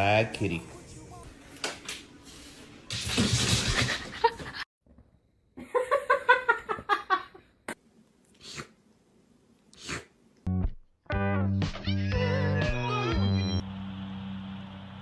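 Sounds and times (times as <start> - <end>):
cat hissing: 8.4 - 8.8, 9.7 - 10.2.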